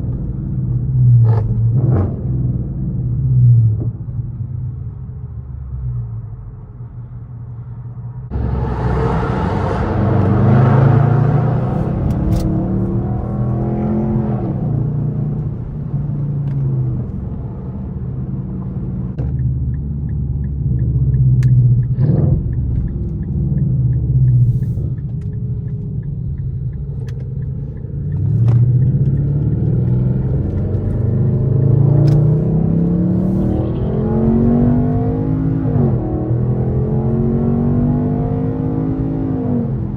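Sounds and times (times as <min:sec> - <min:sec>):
car exhaust accelerating: 0:00.0 - 0:39.9
faint regular ticking: 0:19.3 - 0:29.4.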